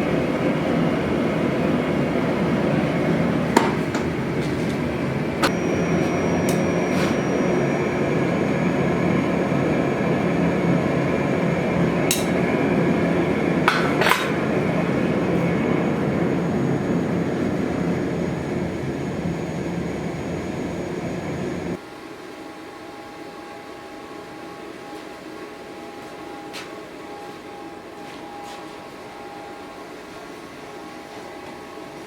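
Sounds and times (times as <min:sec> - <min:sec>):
workshop equipment roar: 0:00.0 - 0:21.8
steady hum: 0:00.0 - 0:22.0.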